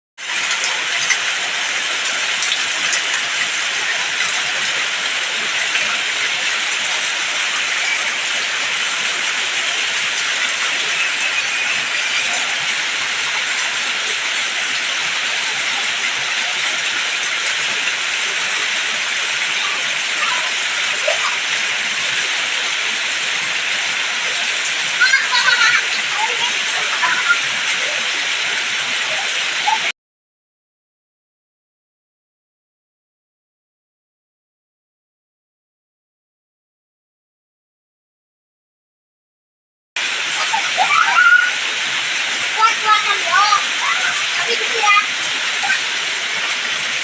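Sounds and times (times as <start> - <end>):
heavy rain falling: 0.2 - 29.9, 40.0 - 47.0.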